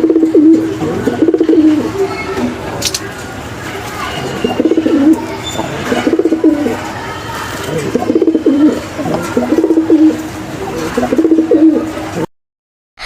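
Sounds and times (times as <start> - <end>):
pigeon cooing: 0.0 - 2.6, 4.2 - 6.9, 7.6 - 12.3.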